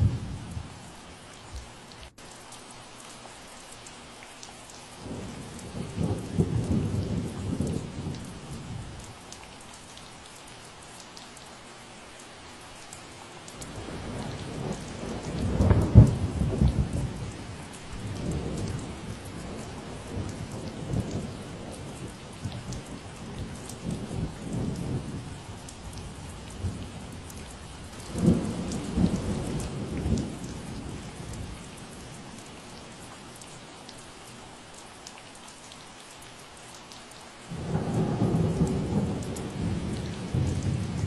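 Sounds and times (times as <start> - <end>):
steady rain falling: 0.0 - 41.0
thunder rolling: 37.5 - 41.0.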